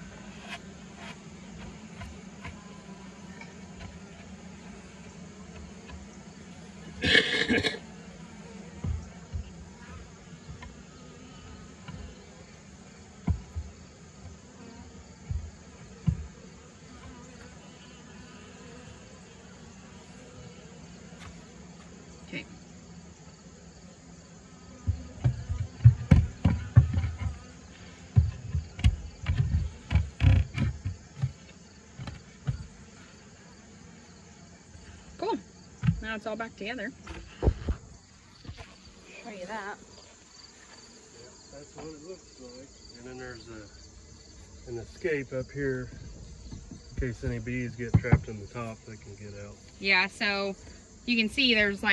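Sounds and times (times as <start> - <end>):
bees buzzing: 0.0 - 51.9
wooden knocks and bumps: 8.8 - 9.6, 13.2 - 14.4, 15.2 - 16.3, 24.8 - 27.5, 28.1 - 32.7, 37.0 - 38.7, 45.8 - 48.4
low thumps: 24.8 - 27.5, 37.0 - 38.7, 45.8 - 48.8.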